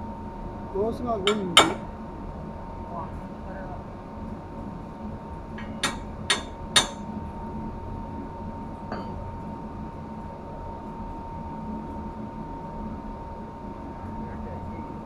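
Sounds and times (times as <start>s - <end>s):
machinery hum: 0.0s - 15.0s
tool striking metal: 1.3s - 1.9s, 5.6s - 7.1s.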